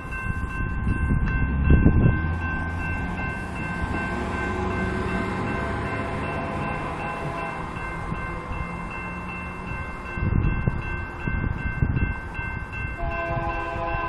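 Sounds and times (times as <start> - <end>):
diesel locomotive rumble: 0.0 - 14.0
wind buffeting microphone: 0.0 - 14.0
locomotive air horn chord: 13.0 - 14.0.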